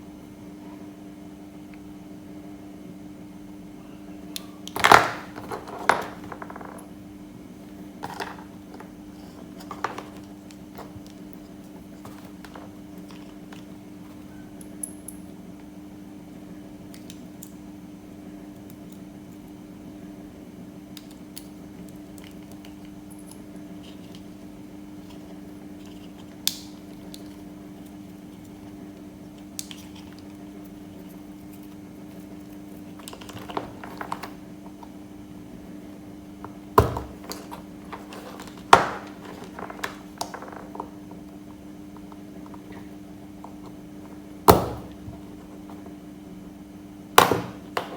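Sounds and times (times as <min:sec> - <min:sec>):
small hard objects clattering: 0:04.8 - 0:06.8, 0:36.8 - 0:41.2
steady low hum: 0:05.3 - 0:47.9.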